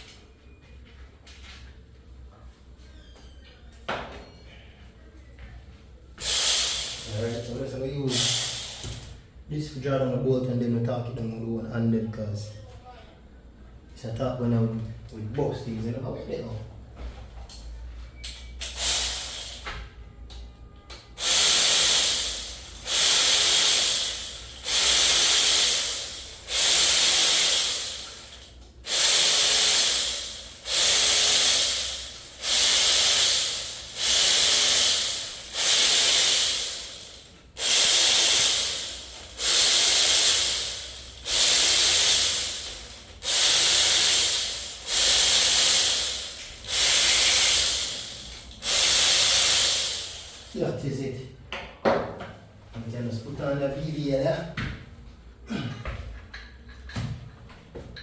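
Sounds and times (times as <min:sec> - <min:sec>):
compressed air hissing bursts: 0:06.2 - 0:09.2, 0:18.6 - 0:19.7, 0:21.2 - 0:50.6.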